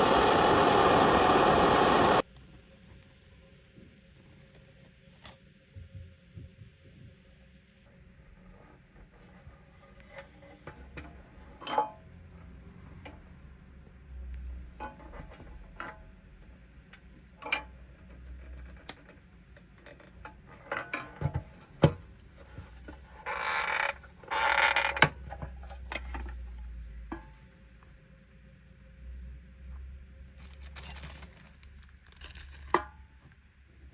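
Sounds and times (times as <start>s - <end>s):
noisy rasping bursts: 0.0s - 2.2s.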